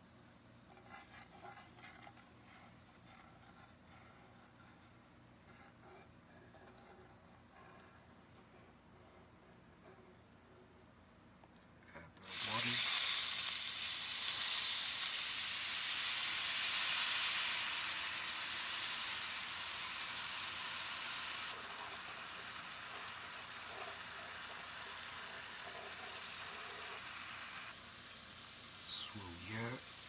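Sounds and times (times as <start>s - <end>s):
water sizzling in hot pan: 12.2s - 30.0s.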